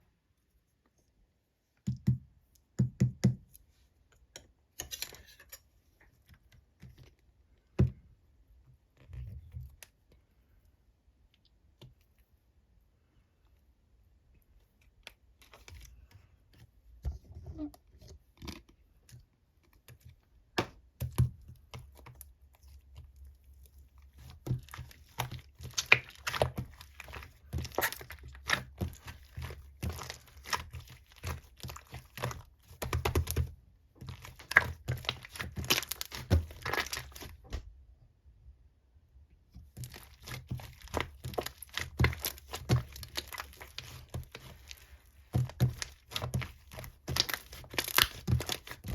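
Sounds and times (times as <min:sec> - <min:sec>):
slime squished by hand: 0:20.6 - 0:37.6, 0:39.6 - 0:48.9.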